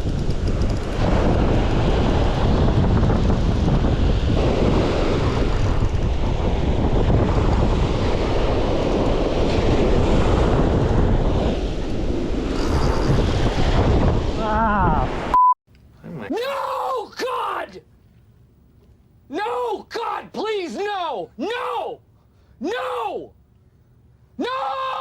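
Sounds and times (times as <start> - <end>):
wind buffeting microphone: 0.0 - 15.3
ocean surf: 0.8 - 15.4.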